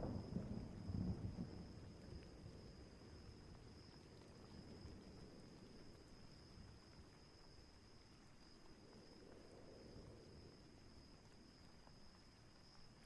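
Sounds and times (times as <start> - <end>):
distant thunder rumble: 0.0 - 1.8
wind: 0.0 - 13.0.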